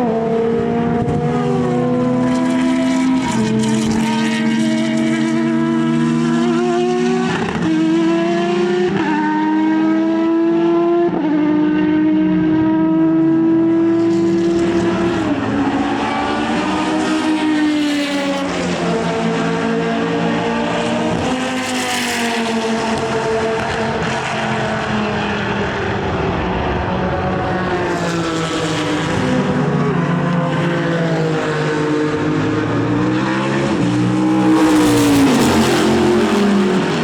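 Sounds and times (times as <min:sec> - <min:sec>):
racing car engine running hard: 0:31.7 - 0:37.0.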